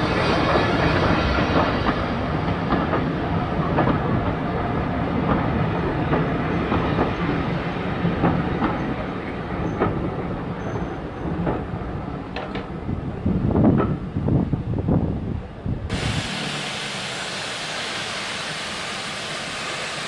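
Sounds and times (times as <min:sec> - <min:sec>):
train wheels rumbling: 0:15.9 - 0:20.0.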